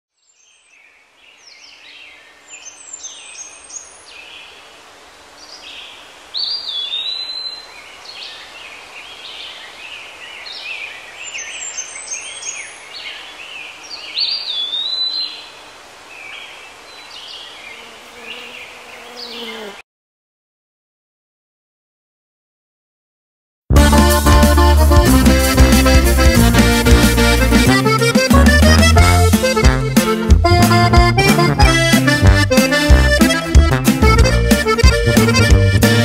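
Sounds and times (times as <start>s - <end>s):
birds singing and calling: 0.2s - 4.6s, 5.4s - 19.7s
background hiss: 0.3s - 19.8s, 24.0s - 30.4s.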